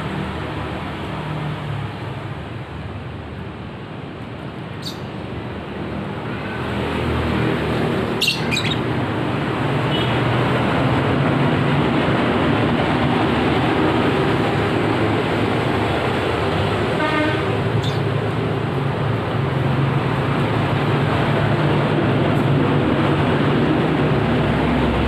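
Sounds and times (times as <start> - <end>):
traffic noise: 0.0 - 25.0
high bird chirps: 4.8 - 5.1, 8.2 - 8.8, 17.8 - 18.0.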